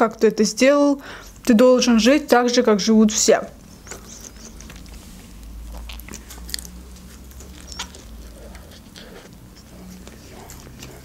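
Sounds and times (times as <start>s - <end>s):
woman biting and chewing: 3.9s - 11.0s.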